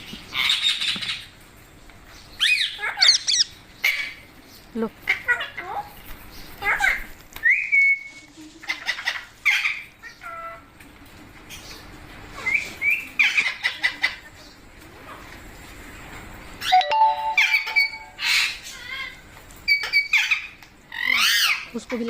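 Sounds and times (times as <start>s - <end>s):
parrot chirping and squawking: 2.4s - 4.3s, 8.6s - 10.6s, 16.6s - 21.7s.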